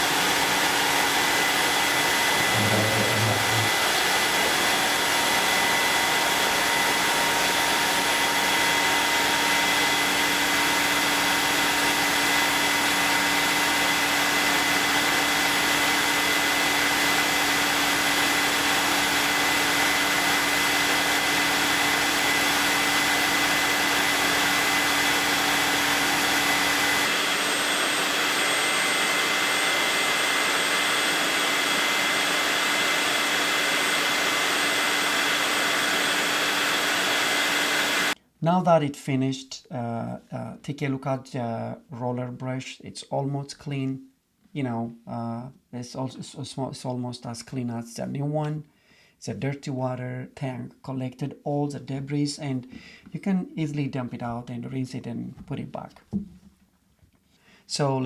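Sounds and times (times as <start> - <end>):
vacuum mop motor whirring: 0.0 - 38.2.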